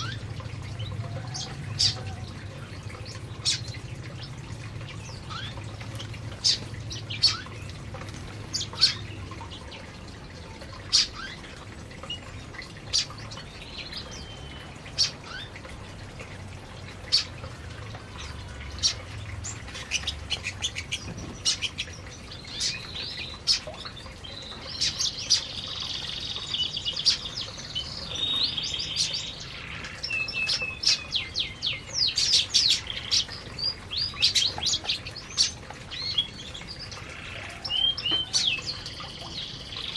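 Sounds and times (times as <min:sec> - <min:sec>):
canary warbling song: 0:00.0 - 0:10.0, 0:10.6 - 0:15.8, 0:16.6 - 0:39.9
canaries chirping: 0:00.8 - 0:02.3, 0:03.0 - 0:07.8, 0:18.2 - 0:39.9.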